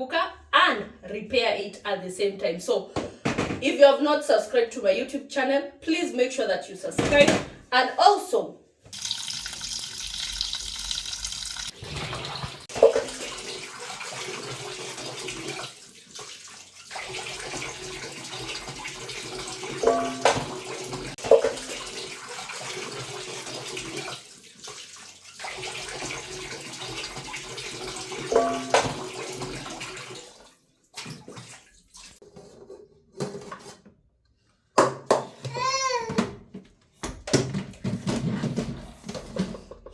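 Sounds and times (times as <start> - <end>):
items clinking in sink: 8.9 - 13.8, 17.0 - 26.2, 26.9 - 30.1
water running from tap: 8.9 - 32.2.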